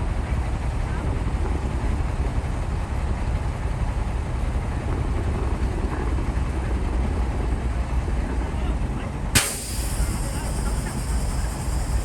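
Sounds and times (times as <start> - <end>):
bulldozer diesel engine rumbling: 0.0 - 12.0.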